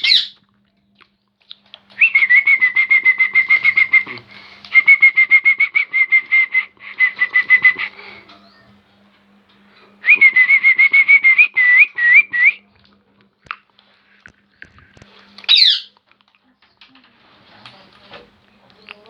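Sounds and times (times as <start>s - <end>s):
baby parrot chirping: 0.0s - 0.4s, 15.5s - 15.9s
parrot squawk: 0.0s - 0.4s, 15.5s - 15.9s.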